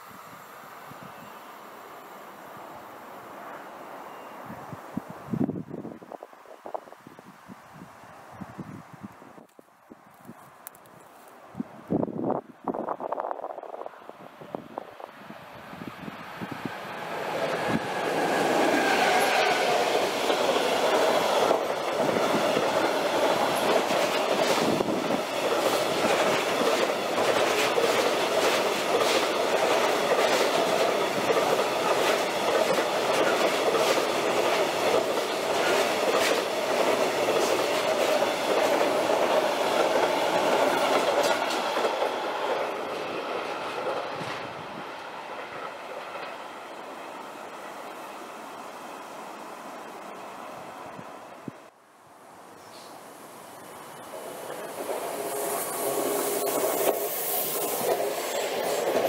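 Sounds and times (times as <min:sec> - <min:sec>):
train wheels clacking over rail joints: 0:17.2 - 0:44.5, 0:54.0 - 0:59.0.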